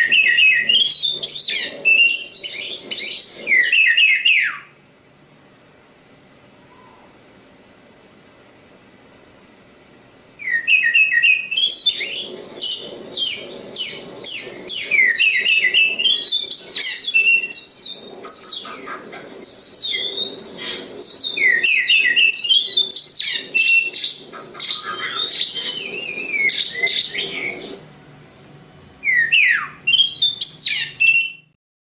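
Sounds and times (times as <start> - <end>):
songbird singing whistles and chirps: 0.0 - 4.8, 6.6 - 7.2, 10.4 - 27.8, 29.0 - 31.6.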